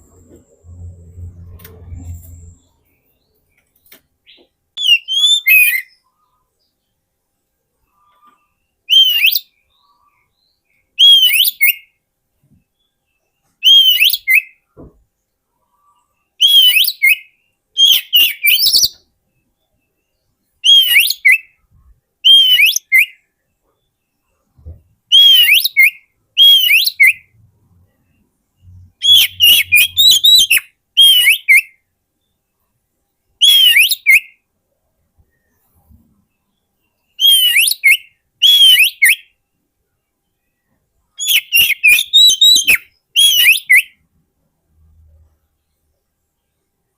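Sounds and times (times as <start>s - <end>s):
bird whistled song: 4.3s - 6.4s, 7.9s - 12.0s, 13.6s - 14.7s, 15.8s - 27.4s, 28.1s - 31.8s, 33.4s - 34.4s, 36.4s - 39.4s, 41.2s - 44.0s.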